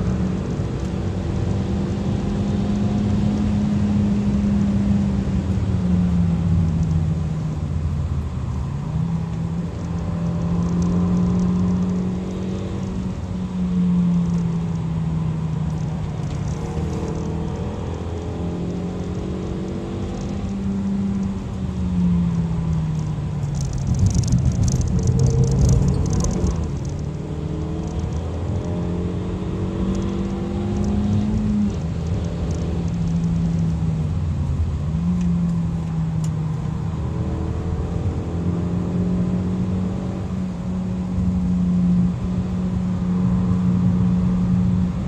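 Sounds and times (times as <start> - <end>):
car engine revving: 0.0 - 45.0
road noise: 0.0 - 45.0.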